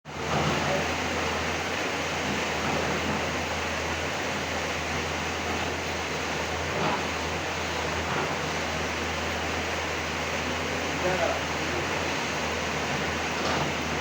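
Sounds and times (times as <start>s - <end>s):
steady rain: 0.1s - 14.0s.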